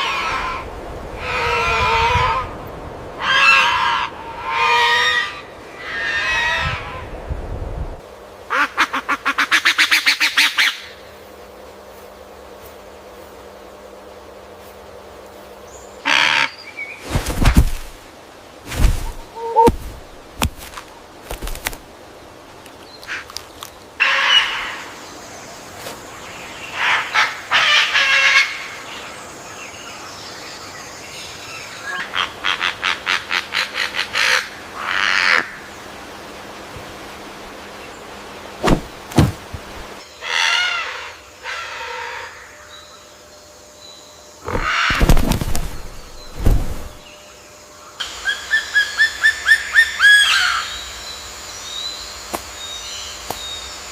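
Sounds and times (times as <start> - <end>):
wild birds calling: 0.0 - 7.1, 15.6 - 18.0, 18.7 - 36.1, 37.4 - 53.9
sudden loud knocks: 38.6 - 39.7.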